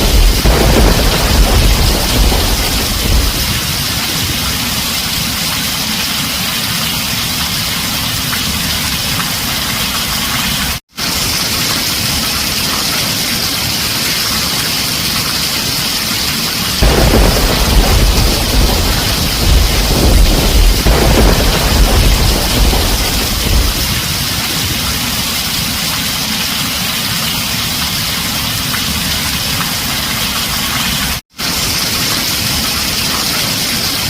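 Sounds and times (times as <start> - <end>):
heavy rain on a tin roof: 0.0 - 34.0.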